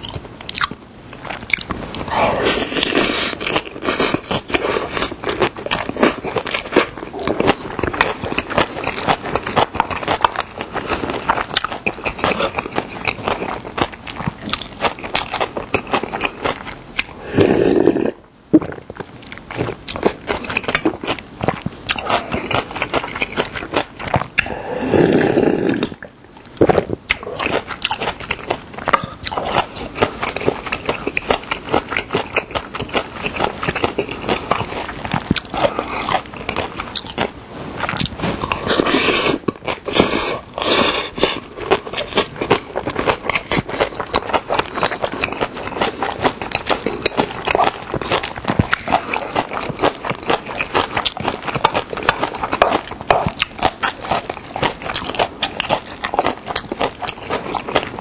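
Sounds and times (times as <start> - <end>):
wet chewing and mouth smacks: 0.0 - 17.2, 25.8 - 58.0
slurping soup: 17.2 - 18.2, 24.4 - 26.1.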